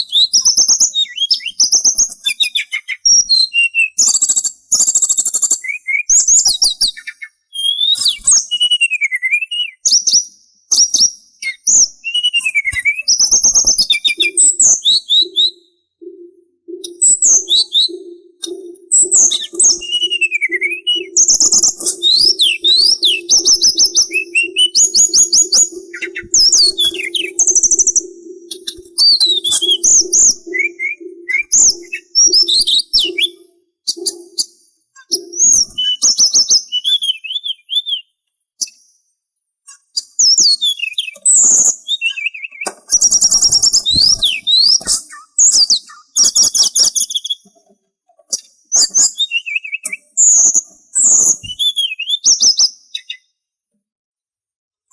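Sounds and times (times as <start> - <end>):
songbird singing: 0.0 - 38.1, 40.5 - 47.6
low pulsing hum: 16.0 - 32.5.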